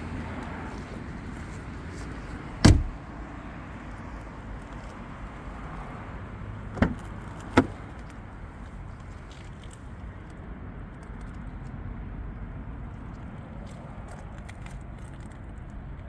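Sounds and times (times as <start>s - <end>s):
car door shutting: 2.6s - 3.0s, 6.7s - 7.8s
sharp knocks: 2.6s - 3.0s, 6.8s - 7.8s.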